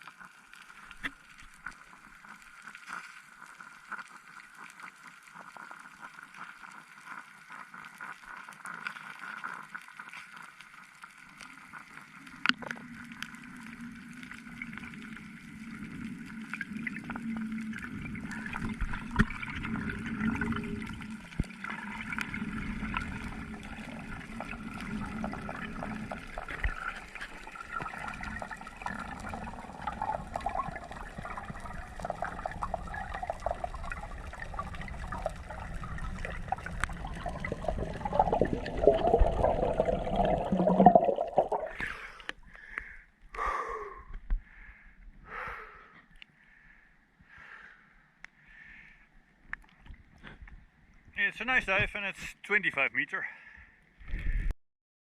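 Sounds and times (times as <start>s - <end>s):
small clicks and pops: 0.0s - 37.6s, 49.4s - 51.1s
water sloshing and gurgling: 10.0s - 42.8s.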